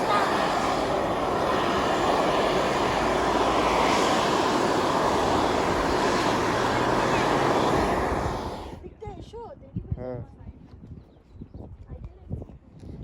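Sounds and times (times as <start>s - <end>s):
geyser steam venting roar: 0.0s - 8.8s.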